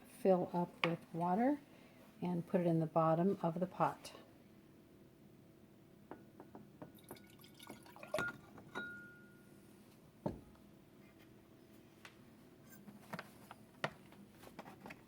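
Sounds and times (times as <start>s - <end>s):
cup clinking on pot: 6.1s - 9.4s
water pouring into pot: 7.0s - 8.2s
ringing clink: 8.2s - 9.4s.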